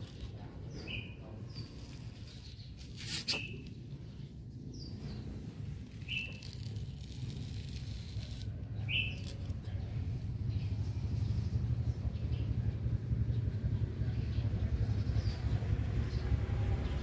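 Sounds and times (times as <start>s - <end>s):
bird chirps: 6.0s - 6.6s, 8.8s - 9.3s.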